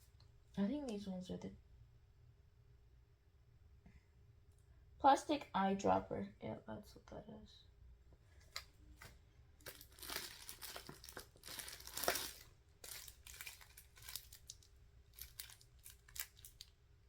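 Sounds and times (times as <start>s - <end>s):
packaging crinkling and rustling: 8.4s - 16.8s.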